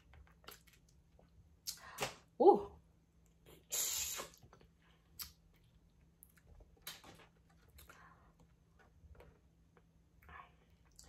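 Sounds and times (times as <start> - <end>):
eating clicks and smacks: 4.3 - 7.9.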